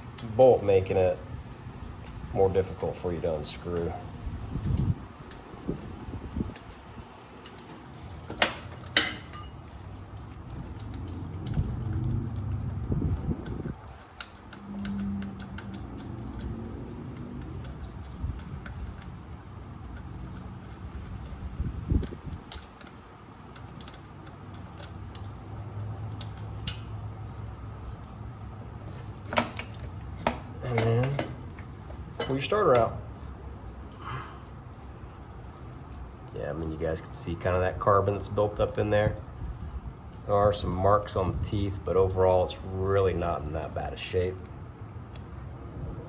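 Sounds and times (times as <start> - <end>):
steady low hum: 0.0 - 46.0
metallic clinks of hand tools: 8.8 - 9.7
low rubbing rumble of handling: 9.5 - 19.6, 26.3 - 34.0.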